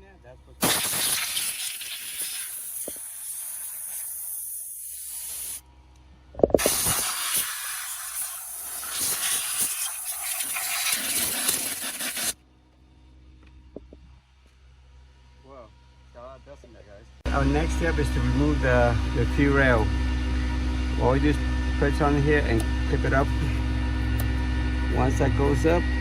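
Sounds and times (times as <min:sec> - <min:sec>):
compressed air hissing from nozzle: 0:00.6 - 0:05.6, 0:06.6 - 0:12.4.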